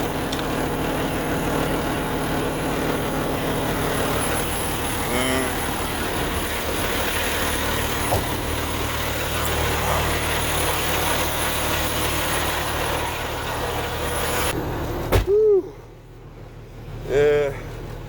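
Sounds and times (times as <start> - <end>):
engine rumble and hiss: 0.0 - 18.0
truck door shutting: 8.0 - 8.6.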